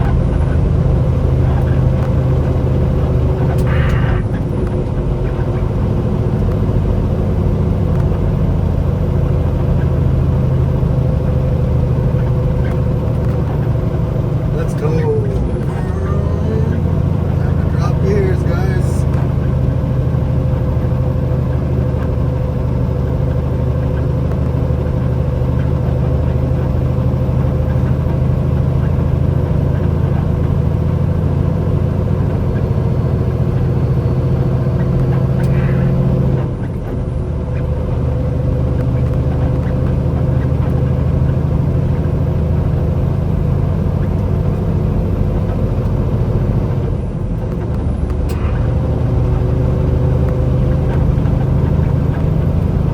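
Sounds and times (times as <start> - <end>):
truck engine droning: 0.0 - 52.9.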